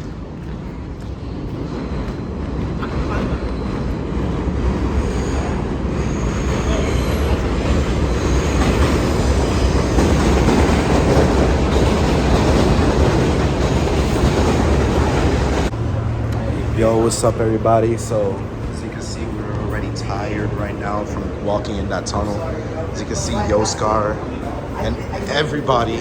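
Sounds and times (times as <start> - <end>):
subway train rumbling on rails: 0.0 - 26.0
high wheel squeal: 5.0 - 10.3.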